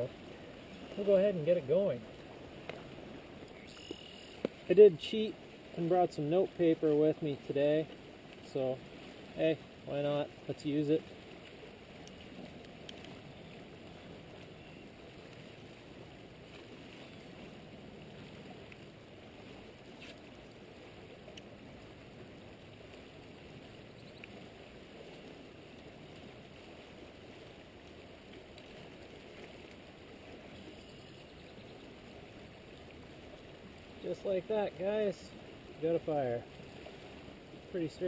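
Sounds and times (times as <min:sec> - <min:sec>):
river rushing: 0:00.0 - 0:13.1, 0:32.0 - 0:38.0
faint clicks: 0:11.4 - 0:13.2, 0:18.6 - 0:18.9, 0:21.3 - 0:21.5, 0:24.0 - 0:24.4.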